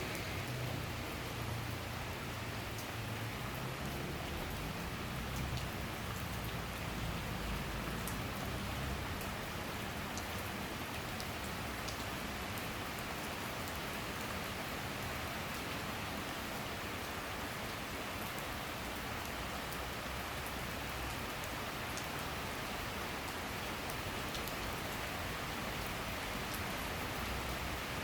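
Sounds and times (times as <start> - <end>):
rain shower hiss: 0.0 - 28.0
raindrop ticks: 2.7 - 3.0, 11.2 - 13.0, 23.9 - 24.7.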